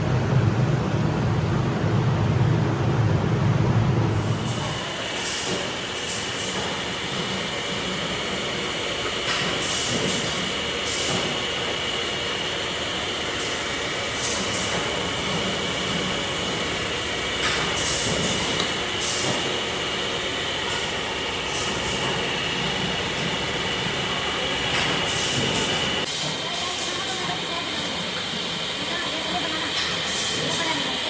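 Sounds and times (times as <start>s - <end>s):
factory machinery whine: 0.0s - 31.0s.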